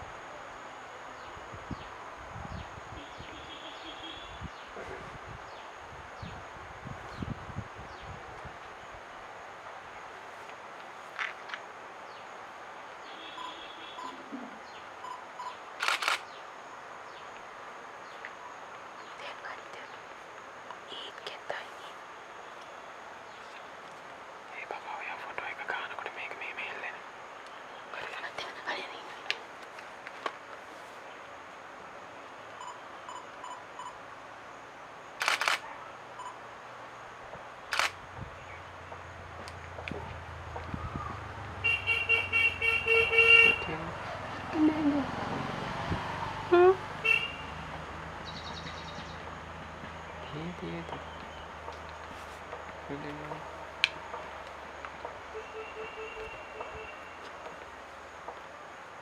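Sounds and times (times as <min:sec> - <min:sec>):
outdoor ambience: 0:00.0 - 0:59.0
camera shutter clicks: 0:15.8 - 0:16.3, 0:35.2 - 0:35.6, 0:37.7 - 0:38.0
faint bird calls: 0:55.3 - 0:57.5.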